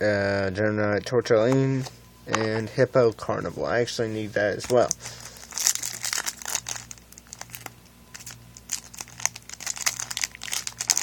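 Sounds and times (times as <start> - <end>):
foil wrappers crinkling and tearing: 4.7 - 11.0.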